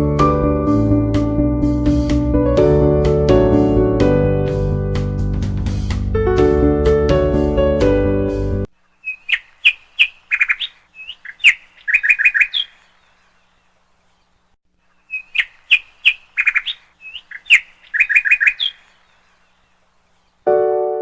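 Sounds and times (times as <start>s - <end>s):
songbird chirps and trills: 8.7s - 21.0s.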